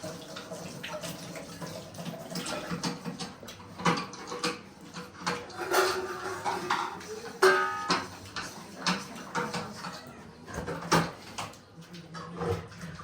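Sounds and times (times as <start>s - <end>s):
dishes clicking and knocking: 2.3s - 11.6s.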